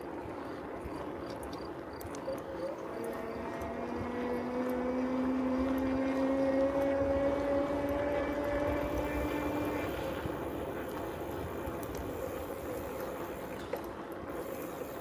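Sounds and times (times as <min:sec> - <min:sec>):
road noise: 0:00.0 - 0:15.0
motor engine droning: 0:02.9 - 0:11.0.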